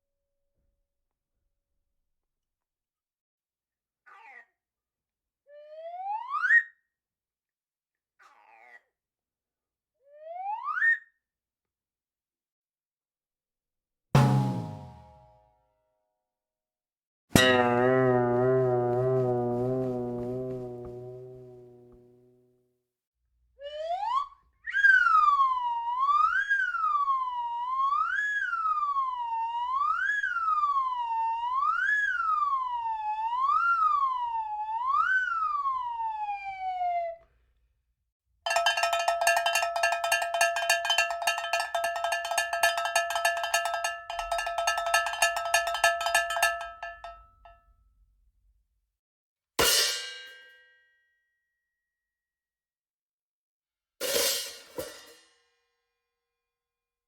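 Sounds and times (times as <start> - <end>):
crash cymbal hit: 14.2 - 15.2
cowbell rung rapidly: 17.4 - 21.2, 38.5 - 47.6.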